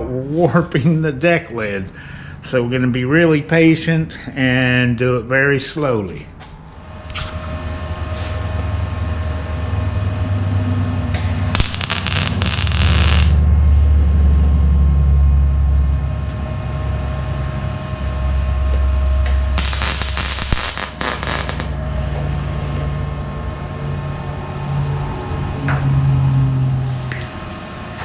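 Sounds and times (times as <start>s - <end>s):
steady low hum: 0.0s - 28.0s
welding arc crackling: 11.2s - 13.4s, 19.2s - 21.7s.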